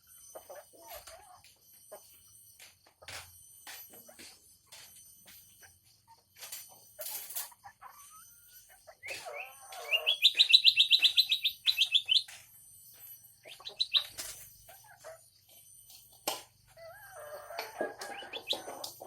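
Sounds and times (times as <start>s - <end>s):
soft bird calls and clicks: 6.4s - 12.6s, 13.4s - 16.4s, 17.6s - 19.0s
songbird trilling: 8.9s - 12.4s, 13.4s - 14.3s, 18.1s - 18.8s.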